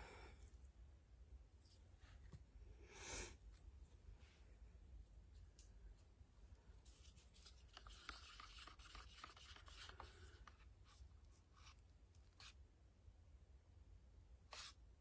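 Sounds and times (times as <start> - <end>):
faint scratching and rubbing: 6.8 - 12.6.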